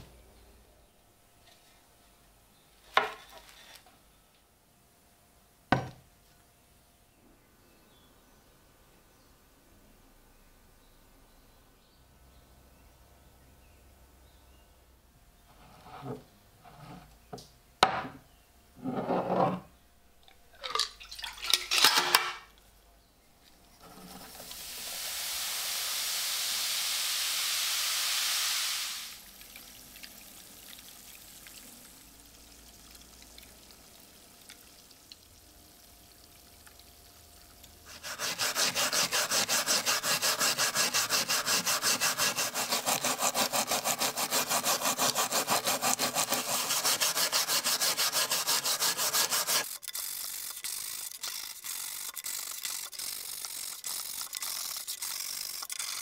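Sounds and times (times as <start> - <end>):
steady hiss: 23.6 - 37.2
hand sanding a knife: 37.9 - 56.0.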